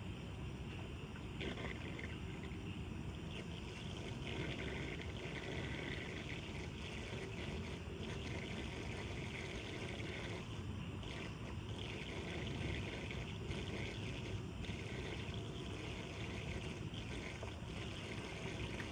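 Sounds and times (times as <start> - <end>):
water rushing down drain: 1.4 - 18.9.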